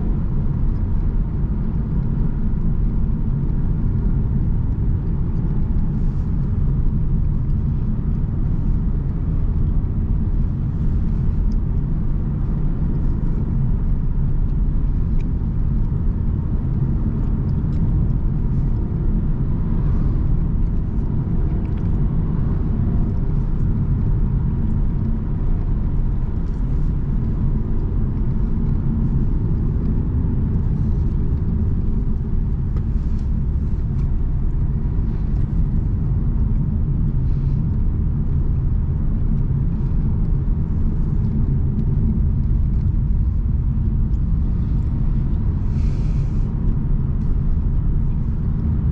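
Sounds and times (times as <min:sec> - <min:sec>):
car engine and road rumble: 0:00.0 - 0:48.9.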